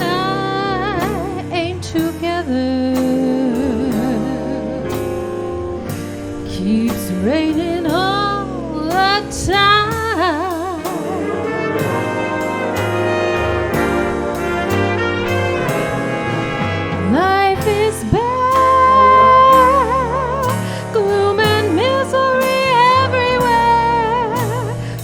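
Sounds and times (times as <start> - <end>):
swing band playing jazz ballad: 0.0 - 25.0
brass lead with vibrato: 9.4 - 20.6.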